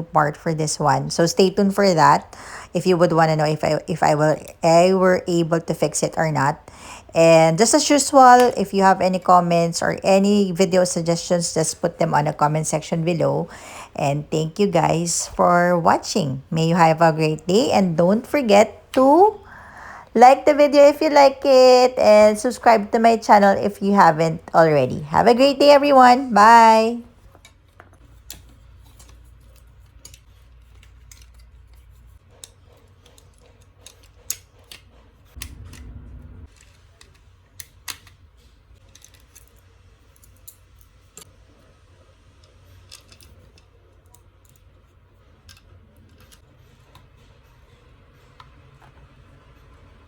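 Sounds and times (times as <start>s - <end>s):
low hum: 35.4s - 36.5s
low rumble: 35.4s - 36.5s.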